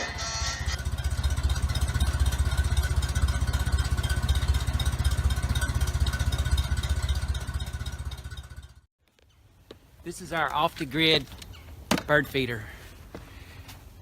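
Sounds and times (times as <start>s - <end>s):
engine puttering: 0.0s - 8.9s.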